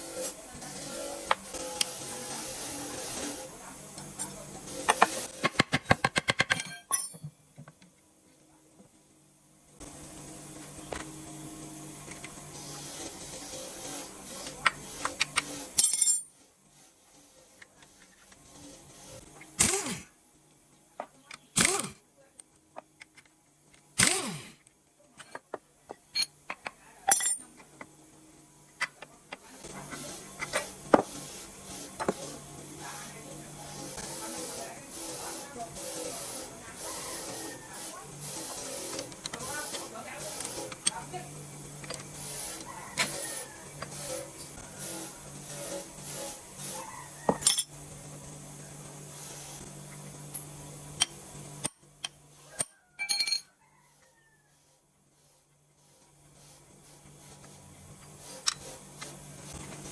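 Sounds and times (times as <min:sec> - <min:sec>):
motor hum with hiss: 0:00.0 - 0:06.0, 0:09.6 - 0:20.6, 0:21.3 - 0:22.0, 0:23.0 - 0:24.7, 0:27.6 - 0:53.0, 0:53.6 - 0:59.9
metal parts clinking: 0:15.8 - 0:16.3, 0:26.1 - 0:27.5, 0:47.4 - 0:47.7.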